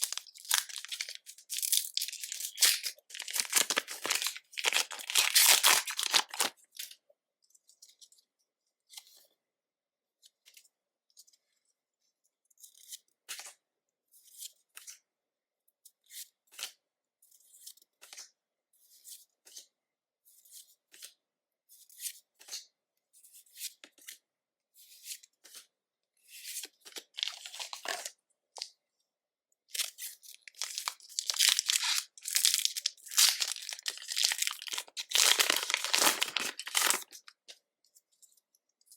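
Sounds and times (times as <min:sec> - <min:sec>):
foil wrapper crinkling and tearing: 0:00.0 - 0:06.6, 0:27.2 - 0:28.1, 0:29.7 - 0:37.3.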